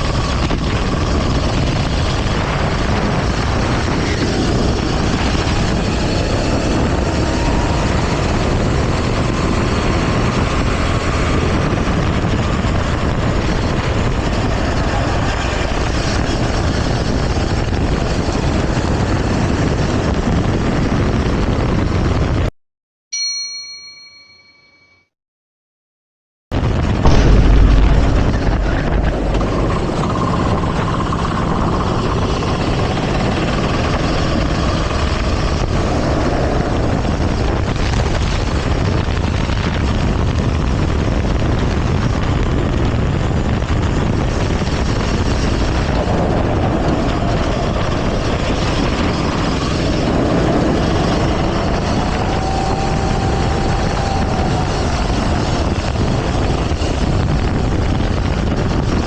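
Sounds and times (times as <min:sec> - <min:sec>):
go-kart engine revving: 0:00.0 - 0:20.1, 0:28.2 - 0:39.1, 0:44.2 - 0:57.2
wind noise on microphone: 0:00.0 - 0:22.5, 0:26.5 - 0:59.0.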